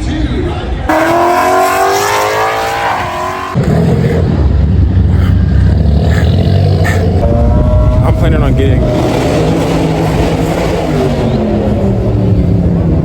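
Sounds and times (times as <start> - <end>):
car engine revving: 0.9 - 13.0
loud low exhaust rumble: 3.6 - 13.0.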